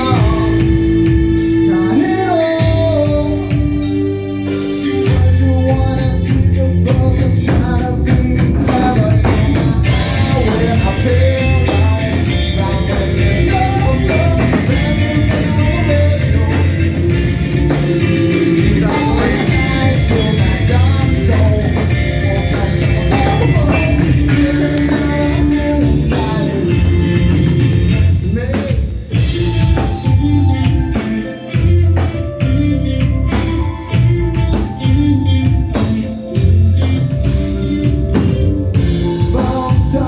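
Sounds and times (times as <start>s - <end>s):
drum kit: 0.0s - 40.0s
electric guitar: 0.0s - 40.0s
person singing: 0.0s - 40.0s.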